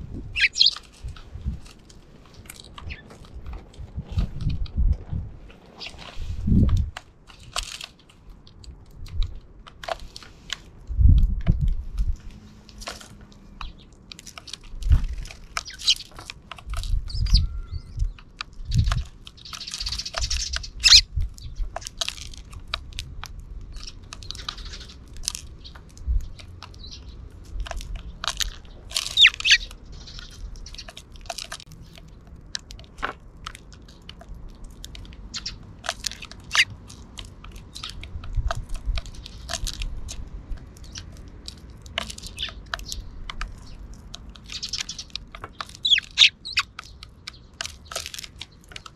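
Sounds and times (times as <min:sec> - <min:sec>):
sparrows chirping: 0:00.0 - 0:03.5, 0:05.7 - 0:06.6, 0:12.9 - 0:22.0, 0:23.4 - 0:32.3, 0:35.1 - 0:36.7, 0:37.4 - 0:48.9
beaks cracking seed: 0:00.3 - 0:03.4, 0:18.0 - 0:48.9.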